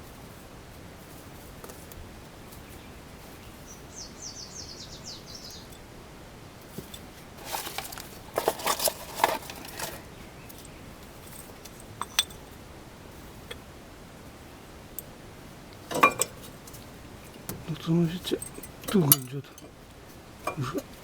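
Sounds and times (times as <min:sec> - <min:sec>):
bird chirping: 0:02.6 - 0:05.8
metal brake parts clinking: 0:06.8 - 0:12.5, 0:15.8 - 0:16.8, 0:17.4 - 0:19.8.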